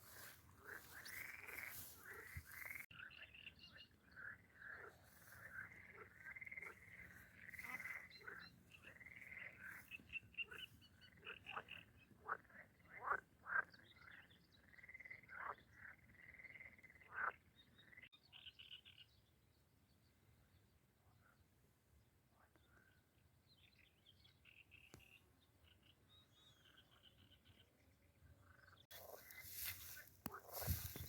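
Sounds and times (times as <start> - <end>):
frogs croaking: 0.0 - 18.4, 28.3 - 31.0.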